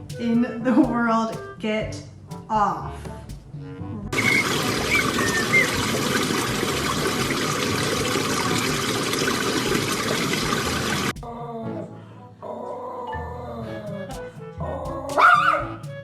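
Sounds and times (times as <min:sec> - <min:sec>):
running water rushing: 0:04.2 - 0:11.2.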